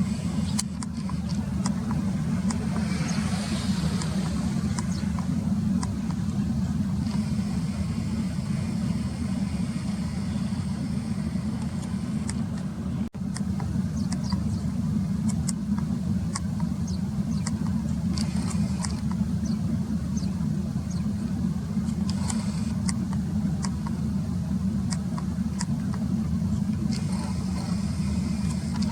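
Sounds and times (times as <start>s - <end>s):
sparrows chirping: 0.0s - 7.3s, 13.7s - 14.8s, 16.6s - 21.3s
steady low rumble: 0.0s - 28.9s.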